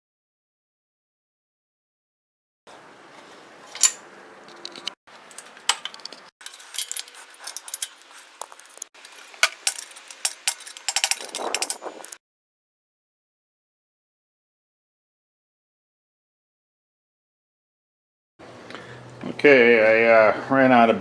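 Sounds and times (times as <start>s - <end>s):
metal tools clinking and knocking: 3.2s - 12.2s.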